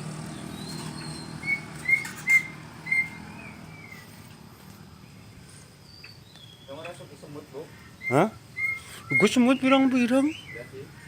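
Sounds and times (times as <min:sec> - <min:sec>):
songbird whistling: 0:00.4 - 0:04.2, 0:05.8 - 0:06.9, 0:07.9 - 0:10.8.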